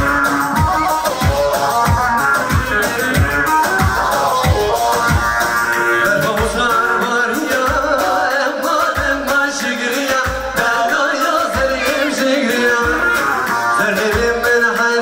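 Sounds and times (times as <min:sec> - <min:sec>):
deep drum beat: 0:00.0 - 0:08.1
melodic instruments: 0:00.0 - 0:14.4
person singing: 0:00.0 - 0:15.0.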